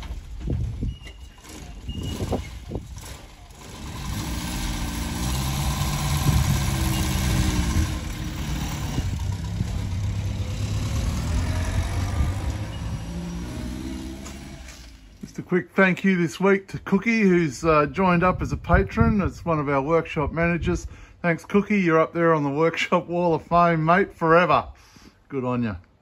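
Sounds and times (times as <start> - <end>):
car engine running: 1.6 - 15.2.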